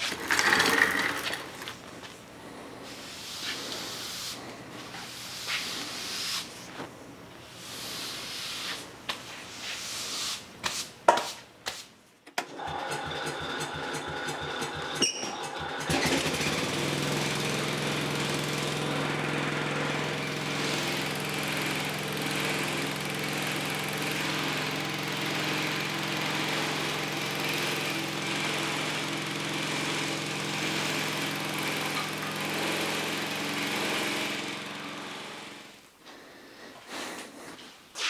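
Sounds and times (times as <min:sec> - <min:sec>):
power tool motor humming: 0:15.8 - 0:35.6.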